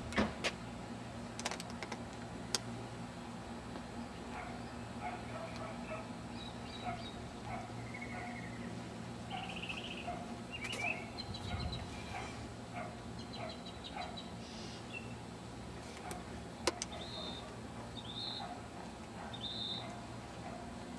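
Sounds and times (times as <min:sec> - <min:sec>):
steady low hum: 0:00.0 - 0:20.9
small birds chirping: 0:04.0 - 0:15.2, 0:16.8 - 0:18.6, 0:19.3 - 0:20.0.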